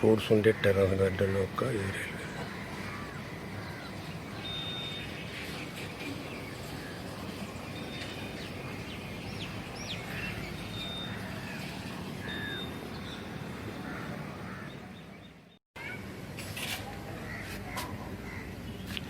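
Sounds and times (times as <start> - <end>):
small birds chirping: 1.9 - 15.6.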